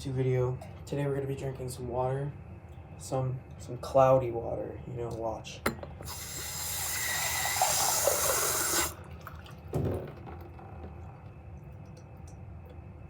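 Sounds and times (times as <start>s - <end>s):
tap water running into glass: 5.6s - 10.5s.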